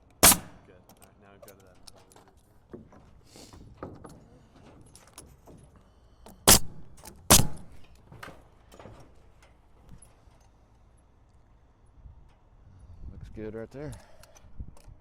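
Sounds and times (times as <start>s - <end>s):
pneumatic nail gun firing: 0.0s - 0.7s, 6.3s - 7.9s
rattling and handling knocks: 0.0s - 11.0s.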